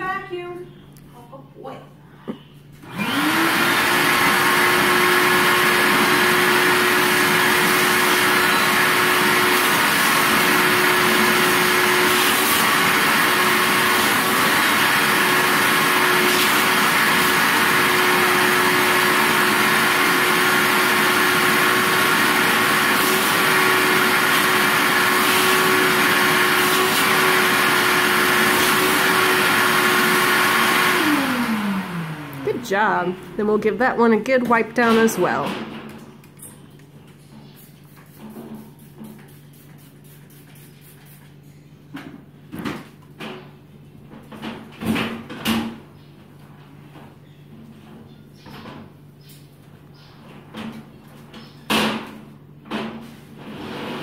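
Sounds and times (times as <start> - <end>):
vacuum cleaner running: 2.8 - 35.6, 53.4 - 54.0.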